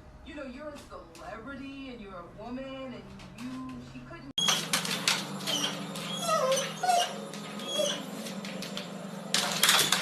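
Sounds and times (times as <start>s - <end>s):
dog whimpering: 5.4s - 8.4s.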